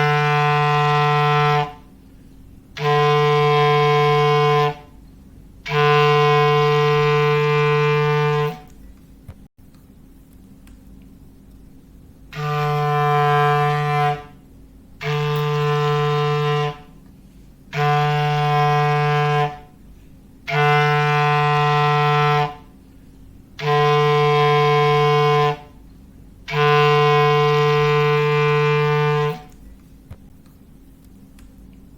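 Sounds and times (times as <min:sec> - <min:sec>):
low foghorn blasts: 0:00.0 - 0:02.0, 0:02.7 - 0:05.0, 0:05.6 - 0:08.7, 0:12.3 - 0:17.0, 0:17.7 - 0:22.9, 0:23.5 - 0:29.6.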